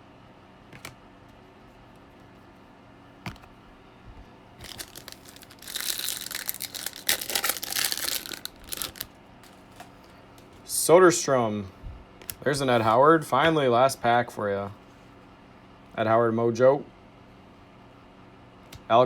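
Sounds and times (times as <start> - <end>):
foil wrapper tearing and crinkling: 4.6 - 9.9.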